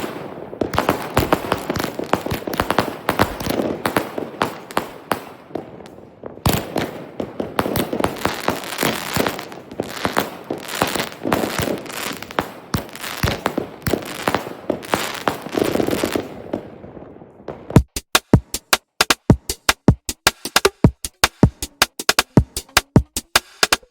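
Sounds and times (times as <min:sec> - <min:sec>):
fireworks bangs and crackles: 0:00.0 - 0:17.9.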